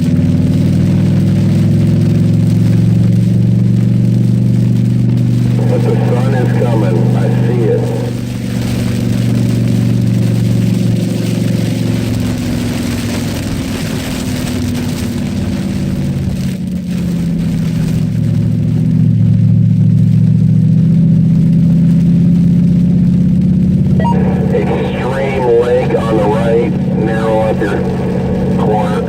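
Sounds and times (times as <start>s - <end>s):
car engine pulling hard: 26.3s - 29.0s.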